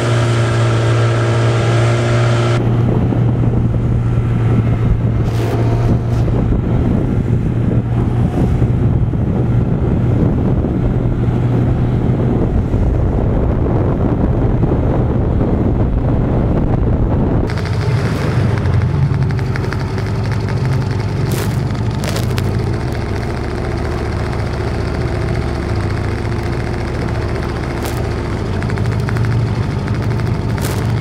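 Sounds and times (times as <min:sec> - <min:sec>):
outboard motor droning: 0:00.0 - 0:31.0
wind buffeting microphone: 0:01.8 - 0:24.5.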